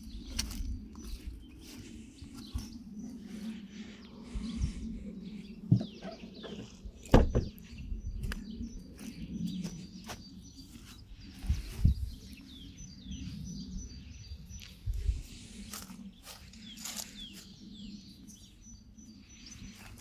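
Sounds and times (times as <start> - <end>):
birds chirping: 0.0 - 20.0
loud knocks: 7.1 - 7.5.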